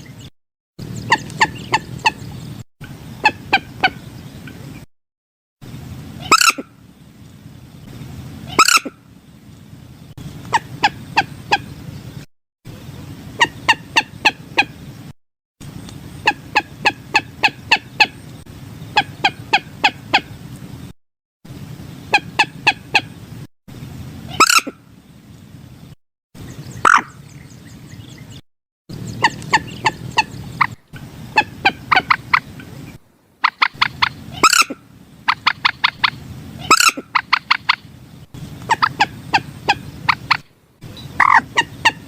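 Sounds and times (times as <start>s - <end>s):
moorhen calling: 0.0s - 4.9s, 6.2s - 6.8s, 8.4s - 9.1s, 10.4s - 12.0s, 13.4s - 14.8s, 16.1s - 20.4s, 22.1s - 23.2s, 24.3s - 24.8s, 26.4s - 42.0s.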